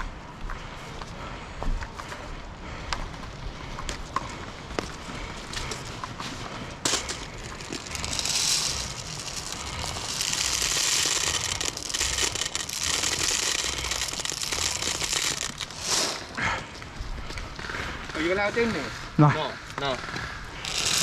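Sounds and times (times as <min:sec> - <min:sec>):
hiss-like rustle: 0:05.6 - 0:16.4.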